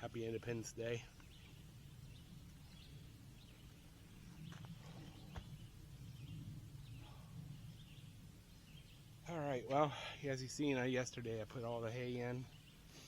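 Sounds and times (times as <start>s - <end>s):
low steady rumble: 0.0s - 12.9s
faint bird chirps: 1.0s - 10.6s.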